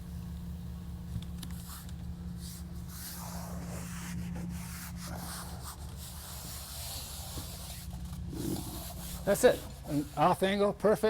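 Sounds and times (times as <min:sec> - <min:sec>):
steady low hum: 0:00.0 - 0:11.0
rubbing and scraping on drywall: 0:02.9 - 0:10.6.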